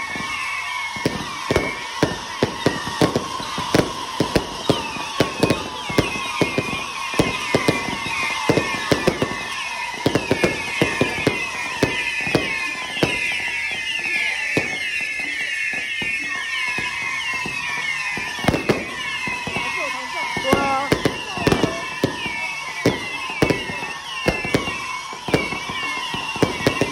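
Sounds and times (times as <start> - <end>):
fireworks bangs: 0.0 - 26.9
whistling firework shells: 0.0 - 26.9.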